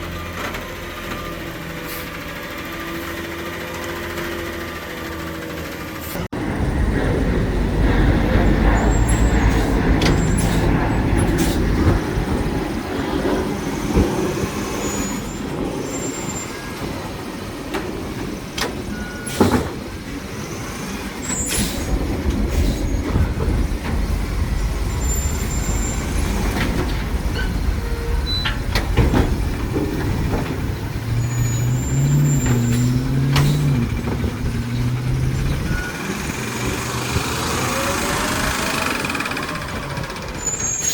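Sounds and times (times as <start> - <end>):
garbage truck engine running: 0.0 - 40.9
sharp bangs and clanks: 21.2 - 37.3.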